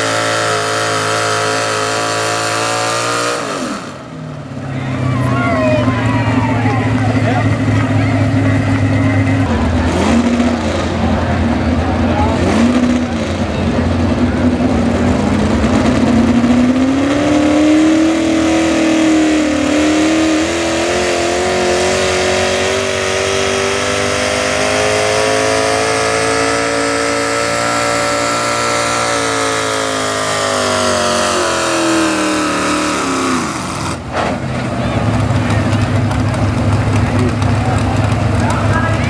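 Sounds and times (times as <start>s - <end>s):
truck engine at high revs: 0.0s - 39.0s.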